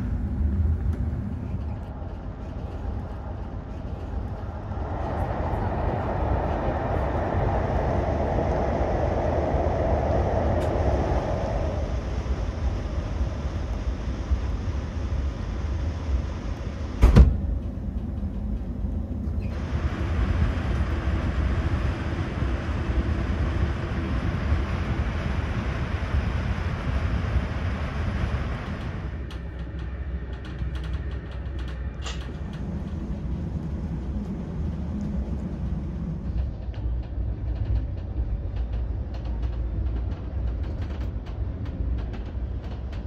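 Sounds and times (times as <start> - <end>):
train coach rumbling on rails: 0.0 - 43.0
interior creaks and ticks: 0.8 - 4.6, 28.8 - 43.0
sharp knock: 17.0 - 17.4.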